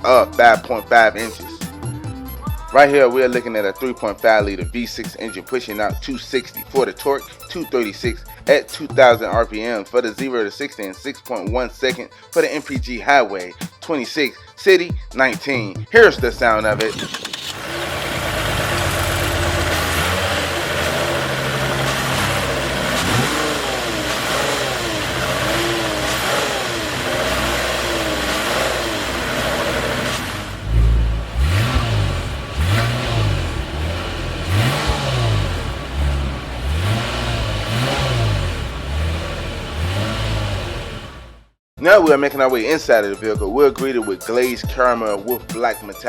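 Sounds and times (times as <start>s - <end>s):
car engine revving: 16.8s - 41.6s
car engine running: 16.8s - 41.6s.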